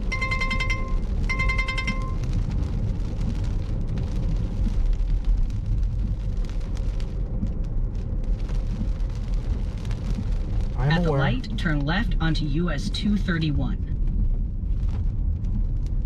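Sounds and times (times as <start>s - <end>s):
two-tone electronic beep: 0.0s - 2.3s
rain hitting windshield and roof: 0.0s - 16.0s
road and engine rumble: 0.0s - 16.0s.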